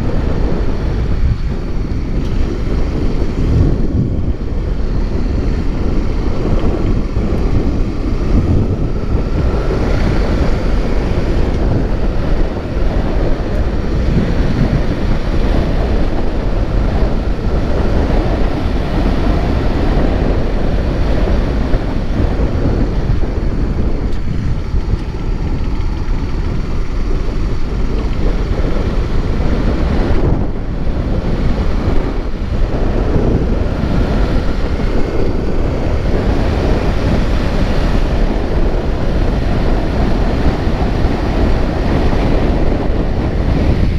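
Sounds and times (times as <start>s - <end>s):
road and engine noise: 0.0s - 43.9s
wind buffeting microphone: 0.0s - 43.9s.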